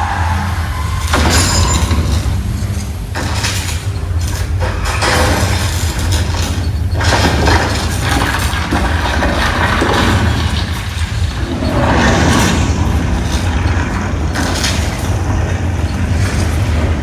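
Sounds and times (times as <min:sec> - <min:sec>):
noisy crashes: 0:00.0 - 0:06.2
deep rumble: 0:00.0 - 0:17.0.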